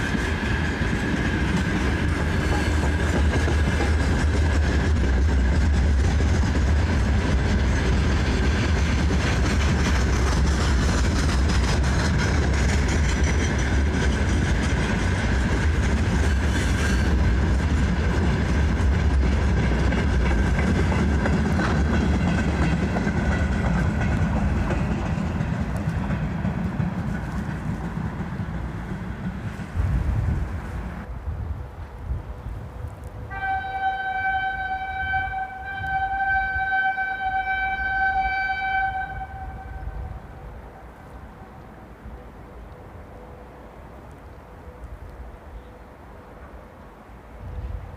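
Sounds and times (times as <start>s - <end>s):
freight wagons rolling on rails: 0.0s - 31.0s.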